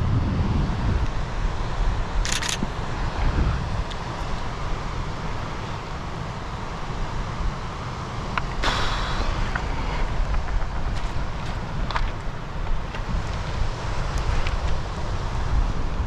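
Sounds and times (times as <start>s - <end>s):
wind rumbling on microphone: 0.0s - 16.0s
short rush of noise: 8.6s - 11.2s.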